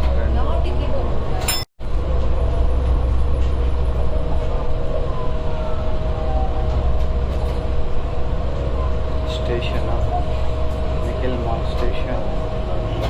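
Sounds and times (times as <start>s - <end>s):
monorail rumbling on track: 0.0s - 13.0s
steady hum: 0.6s - 13.0s.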